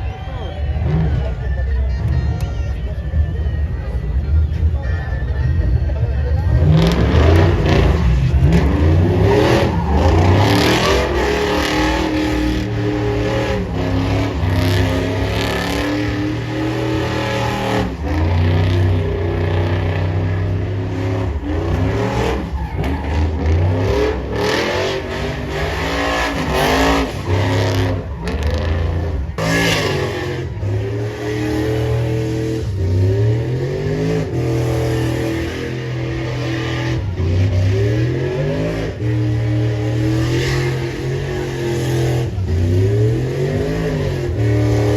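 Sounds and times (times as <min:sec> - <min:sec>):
truck engines revving: 0:00.0 - 0:44.9.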